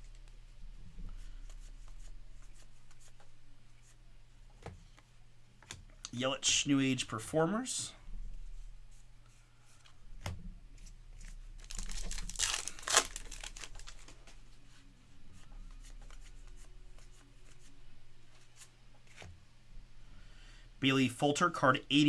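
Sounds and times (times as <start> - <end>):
wrapper tearing and crinkling: 11.2 - 14.2.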